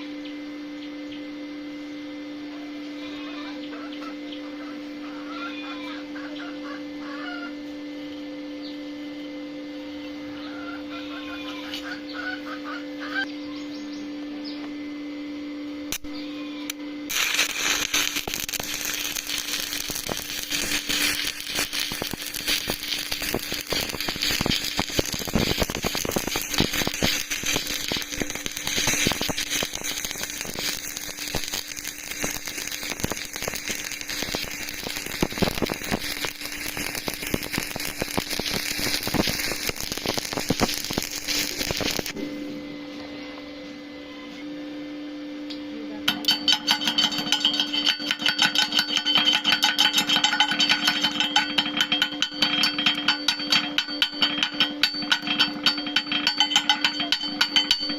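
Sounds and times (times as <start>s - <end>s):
welding arc crackling and popping: 15.9s - 42.5s, 46.1s - 57.9s.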